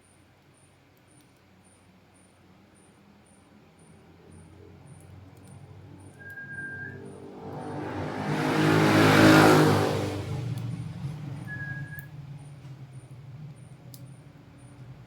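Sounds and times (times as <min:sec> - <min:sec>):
vehicle passing by: 0:05.7 - 0:13.9.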